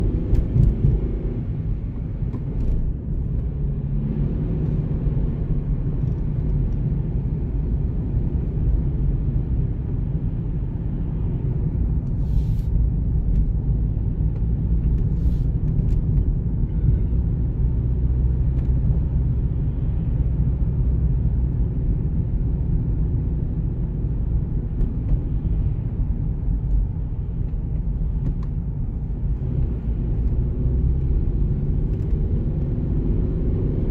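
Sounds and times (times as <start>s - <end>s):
car driving rumble: 0.0s - 33.9s.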